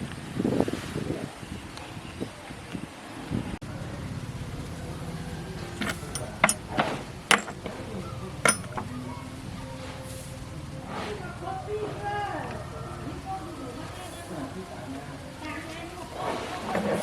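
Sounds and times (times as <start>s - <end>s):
steady low hum: 3.6s - 17.0s
sharp metallic clinks and taps: 5.7s - 9.0s.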